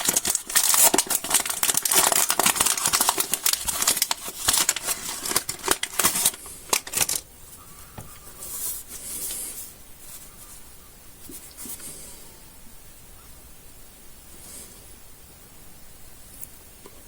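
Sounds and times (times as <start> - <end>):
candy wrapper crinkling: 0.0 - 7.3.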